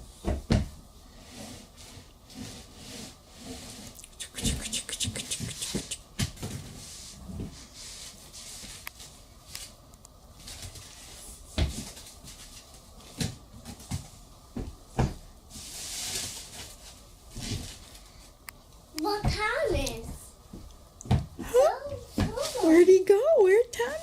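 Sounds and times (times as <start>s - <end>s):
rustle: 15.5s - 18.3s, 22.4s - 23.0s.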